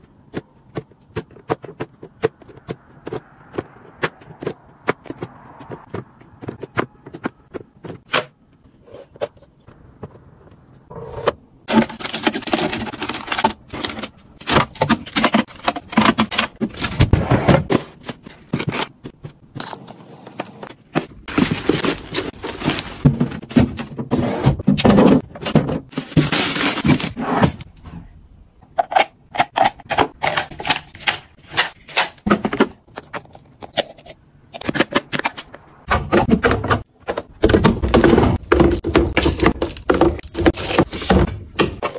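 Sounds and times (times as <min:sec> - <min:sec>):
plastic containers clicking: 0:11.7 - 0:17.0, 0:34.6 - 0:41.9
packaging rustling: 0:20.7 - 0:24.0.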